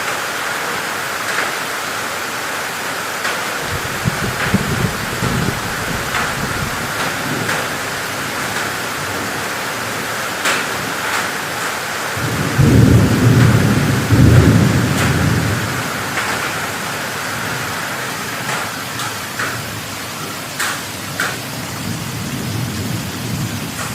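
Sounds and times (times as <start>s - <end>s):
heavy rain pouring: 0.0s - 23.9s
thunder rumbling: 3.6s - 9.3s, 12.2s - 17.7s, 21.8s - 23.9s.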